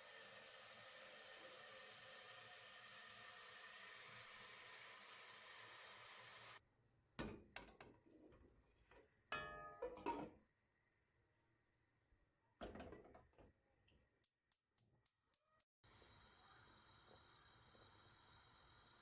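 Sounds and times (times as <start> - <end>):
steady hiss: 0.0 - 6.6, 15.9 - 19.0.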